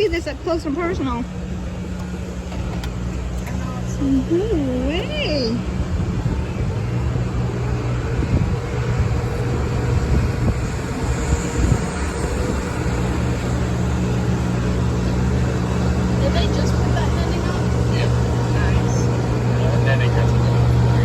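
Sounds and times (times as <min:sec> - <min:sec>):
vehicle engine drone: 0:00.0 - 0:21.0
rushing noise: 0:05.5 - 0:21.0.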